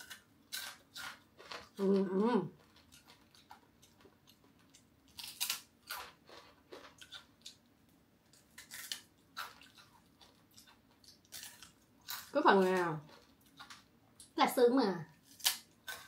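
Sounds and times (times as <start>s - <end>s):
crunchy food being chewed: 0.0s - 14.4s, 15.1s - 16.0s.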